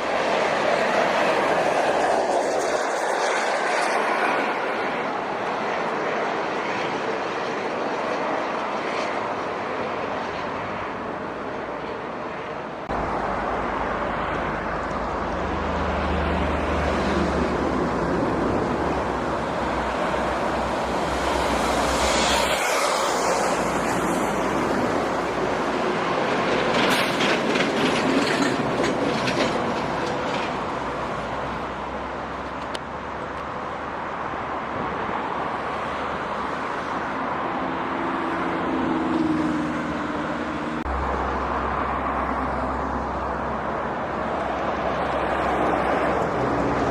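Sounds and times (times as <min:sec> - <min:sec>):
tyre and road noise: 0:00.0 - 0:46.9
diesel trucks driving past: 0:10.8 - 0:46.9.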